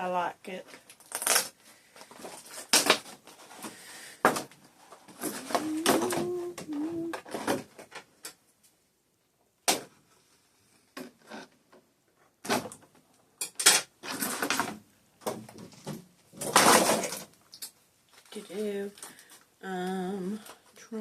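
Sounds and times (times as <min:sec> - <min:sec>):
packaging rustling and crinkling: 0:00.7 - 0:08.1.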